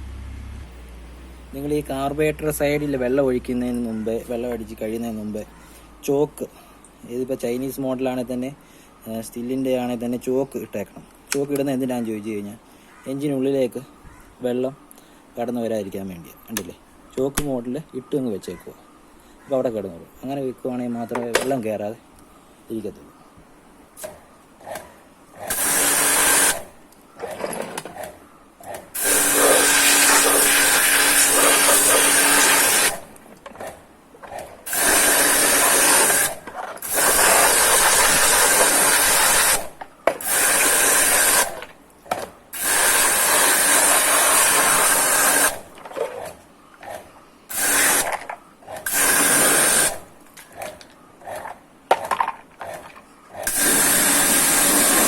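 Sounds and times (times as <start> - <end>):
pressure washer water jet hissing: 25.5 - 26.7, 29.0 - 33.1, 34.7 - 41.6, 42.6 - 45.7, 47.5 - 48.2, 48.8 - 50.1, 53.4 - 55.0.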